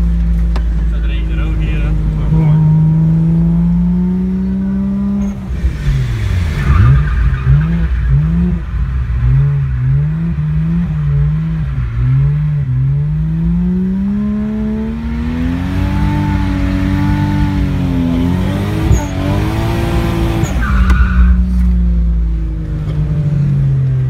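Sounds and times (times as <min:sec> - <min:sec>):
car engine revving: 0:00.0 - 0:24.0
tyre squeal: 0:18.7 - 0:19.6, 0:20.2 - 0:21.6.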